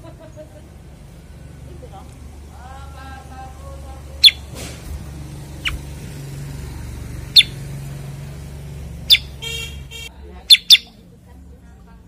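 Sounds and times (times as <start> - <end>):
bird chirping: 4.2 - 4.5, 5.5 - 5.9, 7.2 - 7.8, 9.0 - 11.0.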